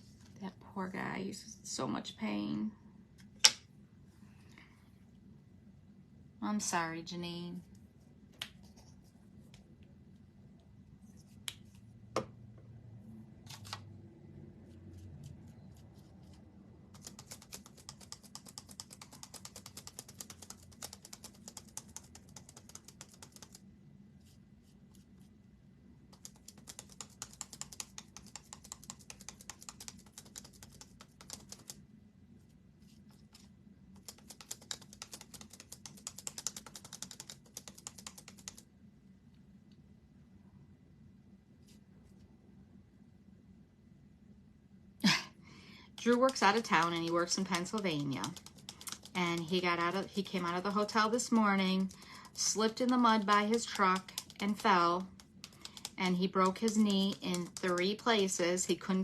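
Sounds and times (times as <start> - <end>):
typing on computer keyboard: 16.9 - 23.6, 26.1 - 31.8, 34.0 - 38.7, 46.0 - 58.8.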